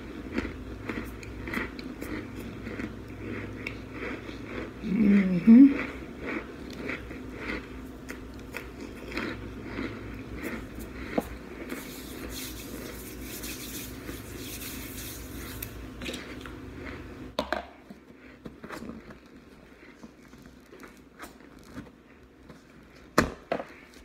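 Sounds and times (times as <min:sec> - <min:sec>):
crunchy chewing: 0:00.0 - 0:17.2, 0:18.2 - 0:22.0
hands brushing together: 0:11.7 - 0:15.8.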